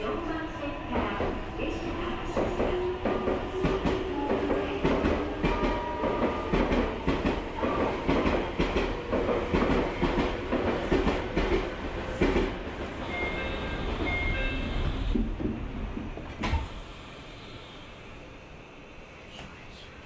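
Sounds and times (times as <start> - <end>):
train low rumble: 0.0 - 20.0
train wheels clicking on rail joints: 2.3 - 12.6.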